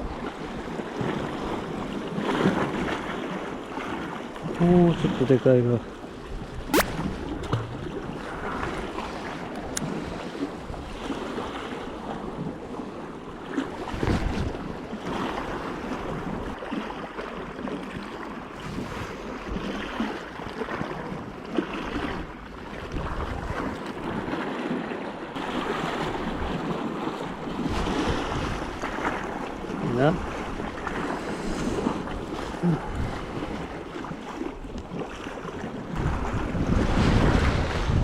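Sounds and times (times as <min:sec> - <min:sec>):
sea waves washing: 0:00.0 - 0:38.0
short sharp tick: 0:06.8 - 0:07.6
wind buffeting microphone: 0:13.7 - 0:16.6, 0:18.6 - 0:38.0.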